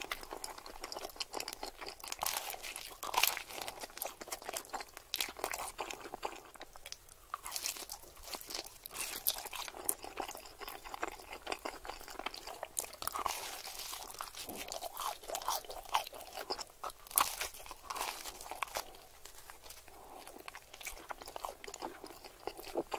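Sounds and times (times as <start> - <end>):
crunchy chewing of pizza: 0.0 - 22.9.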